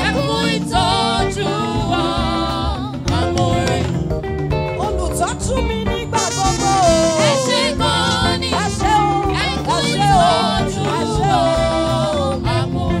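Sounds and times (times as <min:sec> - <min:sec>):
band with steady beat: 0:00.2 - 0:13.0
person singing sliding phrases: 0:06.2 - 0:10.1.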